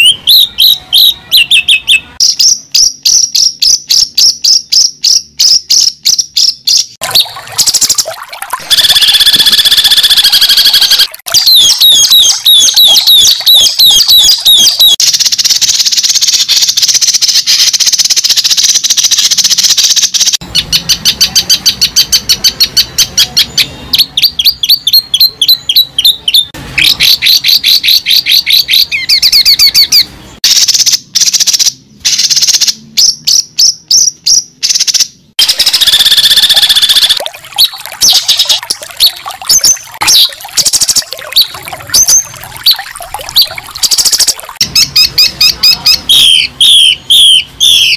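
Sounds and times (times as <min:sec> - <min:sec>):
birds chirping and trilling: 0:00.0 - 0:47.9.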